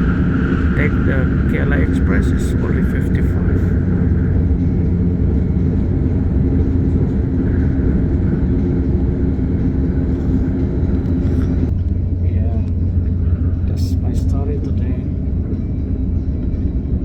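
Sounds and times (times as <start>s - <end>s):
steady hum: 0.0s - 17.0s
train wheels rumbling on track: 0.0s - 17.0s.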